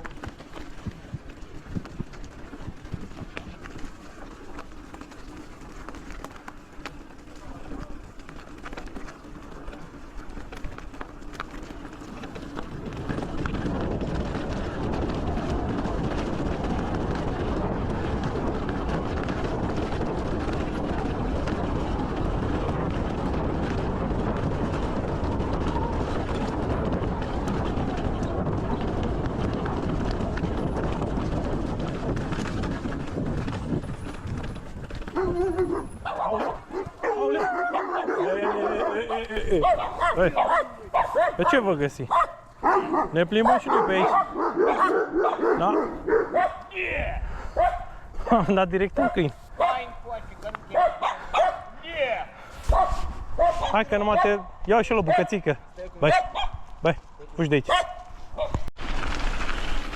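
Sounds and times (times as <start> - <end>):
wind and bicycle tyres rushing: 0.0 - 59.9
dogs barking: 35.1 - 46.7, 47.5 - 50.0, 50.7 - 51.8, 52.7 - 55.4, 56.0 - 56.6, 57.6 - 58.6.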